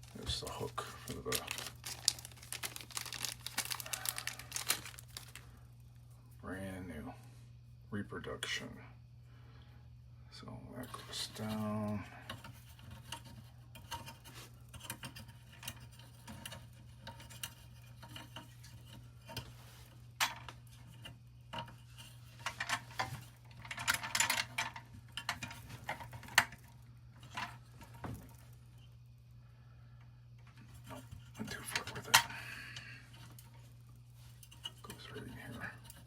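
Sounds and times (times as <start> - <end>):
small metal parts clinking: 0.0 - 5.4
steady low hum: 0.0 - 36.0.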